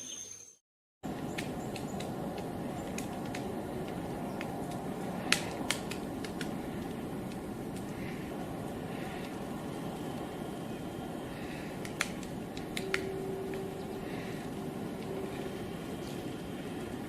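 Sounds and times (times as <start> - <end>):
steady background noise: 1.1 - 17.0
woodpecker pecking at wood: 1.2 - 8.2, 11.4 - 13.6.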